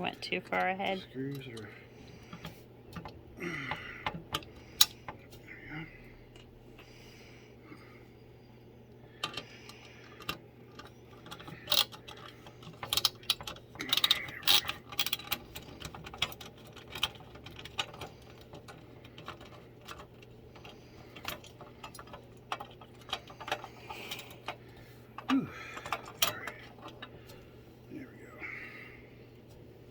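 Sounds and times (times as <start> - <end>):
screws and metal hardware clinking: 10.2 - 27.4.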